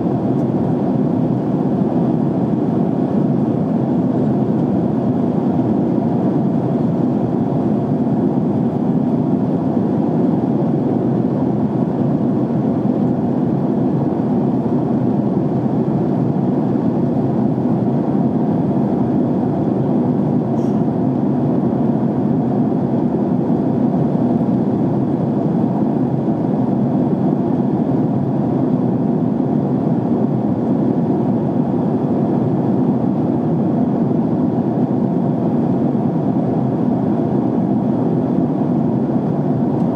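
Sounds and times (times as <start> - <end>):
airliner cabin noise: 0.0 - 39.9.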